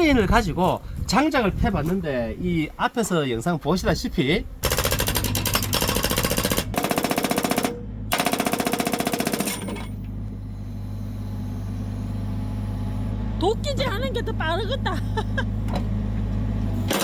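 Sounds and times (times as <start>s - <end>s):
excavator engine running: 4.4s - 17.0s
hydraulic breaker hammering wood: 4.6s - 10.1s.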